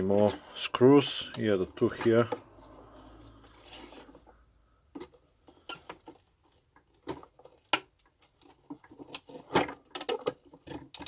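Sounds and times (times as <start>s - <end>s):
plastic casing clicks and knocks: 8.8s - 11.0s.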